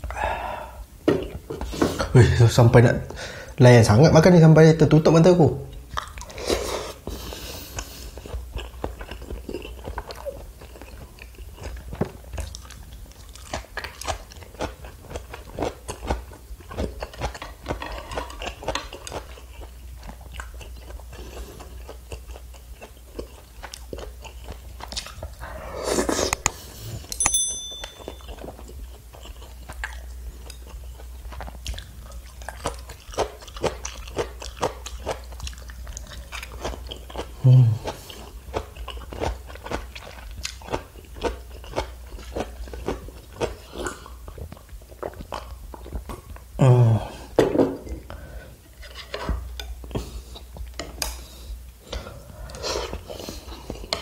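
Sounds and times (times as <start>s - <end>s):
chewing and wet mouth smacks: 5.7s - 6.6s, 7.6s - 25.4s, 28.3s - 46.5s
short ringing clink: 27.2s - 28.4s.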